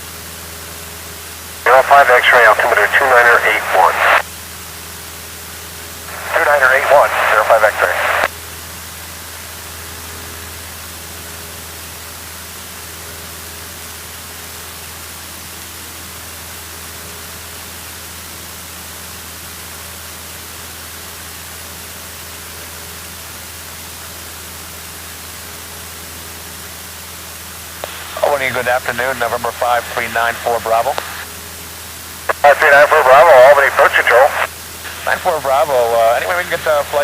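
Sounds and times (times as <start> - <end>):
light aircraft engine drone: 0.0 - 37.0
steady radio hiss: 1.6 - 4.3, 5.8 - 8.3, 26.3 - 37.0.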